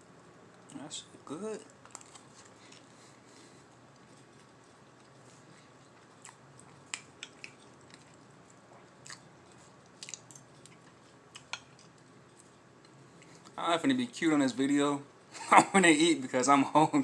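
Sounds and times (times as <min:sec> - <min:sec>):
man chewing crunchy food: 0:01.6 - 0:13.6.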